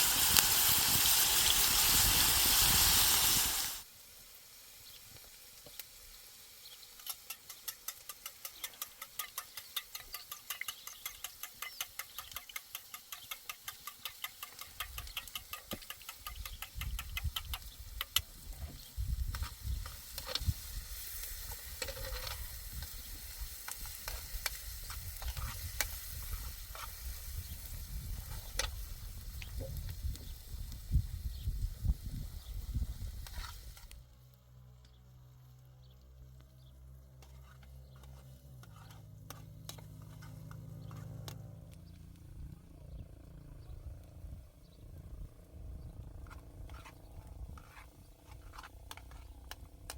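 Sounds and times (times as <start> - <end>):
utensil scraping in a pot: 6.6 - 29.7, 32.7 - 34.0, 37.1 - 41.6, 46.1 - 49.9.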